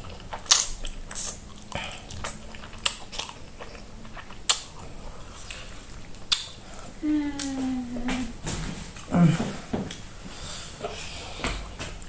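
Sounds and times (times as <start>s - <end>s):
chewing and wet mouth smacks: 0.0s - 6.8s.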